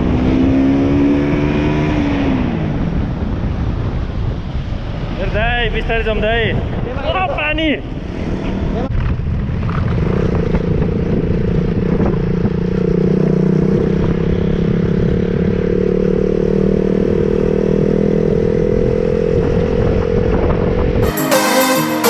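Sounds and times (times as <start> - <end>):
motorcycle engine running: 8.9 - 20.8.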